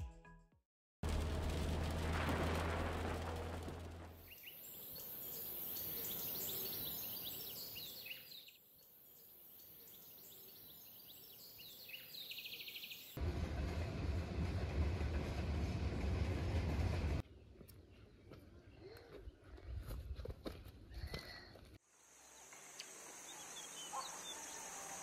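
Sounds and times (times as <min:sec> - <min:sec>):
freight train rumbling past: 0:01.0 - 0:04.4, 0:13.2 - 0:17.2
birds chirping and trilling: 0:04.2 - 0:13.2, 0:22.8 - 0:25.0
steady high hiss: 0:21.9 - 0:25.0.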